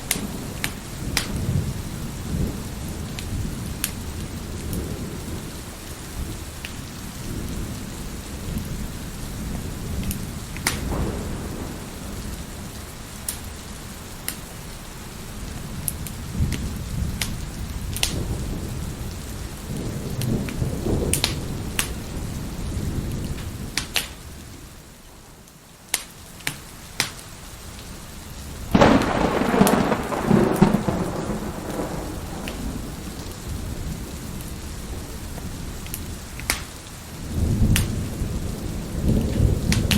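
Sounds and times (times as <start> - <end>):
wood fire crackling: 0.0 - 7.0, 10.0 - 19.4, 20.2 - 38.2
heavy rain: 0.0 - 39.9
thunder rolling: 8.4 - 12.8, 16.2 - 23.7, 28.7 - 36.2, 37.2 - 39.9
loud thunderclap: 10.6 - 12.5, 19.7 - 24.1, 28.7 - 35.6, 37.3 - 39.9.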